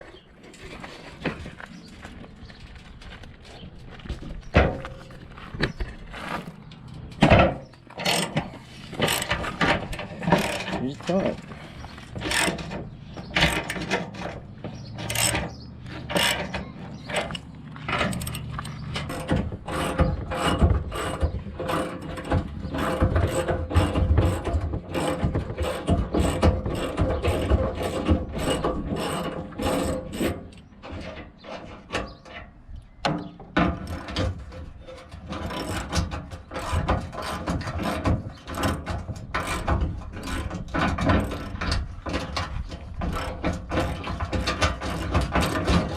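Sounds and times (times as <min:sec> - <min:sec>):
metal tools clicking and clanking: 0:06.2 - 0:32.5.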